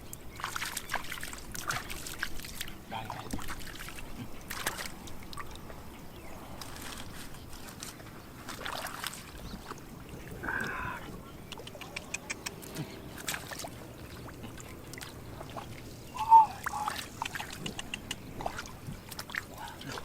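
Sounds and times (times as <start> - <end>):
water sloshing and trickling: 0.0 - 20.0
small splashes and clicks: 0.1 - 5.8, 6.6 - 10.8, 11.4 - 16.0, 16.6 - 20.0
short pitched call: 16.2 - 17.1.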